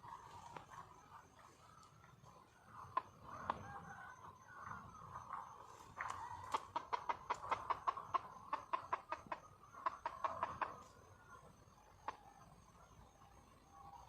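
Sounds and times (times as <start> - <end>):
hen clucking rapidly: 0.0 - 14.0.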